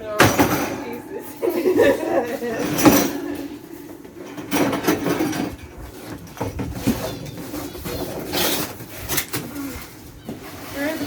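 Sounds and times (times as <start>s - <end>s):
knocks of cage parts: 0.1s - 1.0s.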